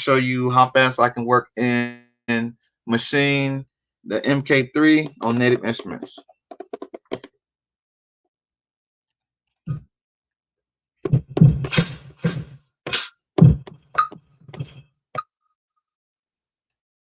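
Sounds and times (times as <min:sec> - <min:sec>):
low drum thuds: 0:13.4 - 0:13.8.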